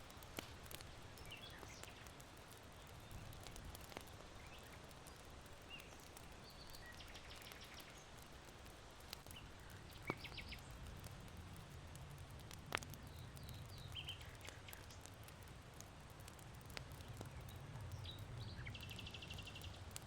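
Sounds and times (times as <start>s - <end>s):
burning charcoal popping: 0.0s - 20.0s
small birds chirping: 0.6s - 8.3s, 9.2s - 10.8s, 12.7s - 15.2s, 16.8s - 20.0s.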